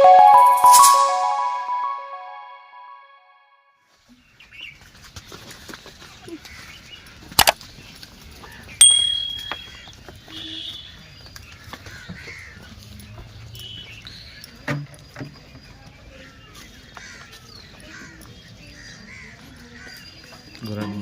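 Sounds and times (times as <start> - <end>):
short high-pitched tone: 0.0 - 3.5, 8.8 - 9.7
bird chirps: 8.8 - 9.9.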